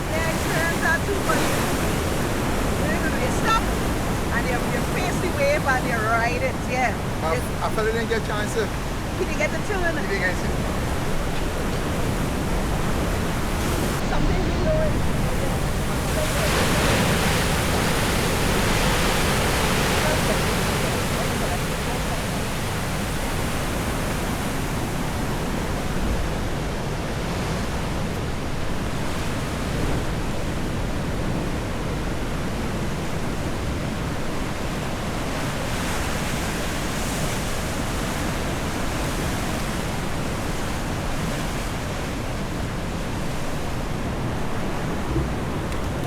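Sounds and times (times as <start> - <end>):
surf washing onto beach: 0.0 - 46.0.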